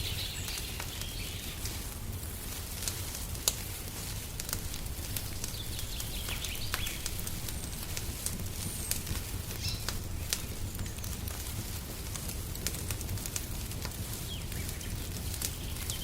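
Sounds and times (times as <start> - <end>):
small birds chirping: 0.0 - 2.0, 3.5 - 11.8, 14.0 - 16.0
wood fire crackling: 0.0 - 16.0.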